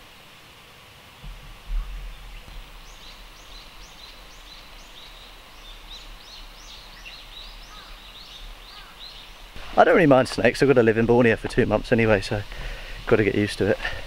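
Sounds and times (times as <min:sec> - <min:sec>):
faint outdoor hiss: 0:00.0 - 0:14.0
wind thump on microphone: 0:01.2 - 0:04.6
small bird calling: 0:01.2 - 0:09.6.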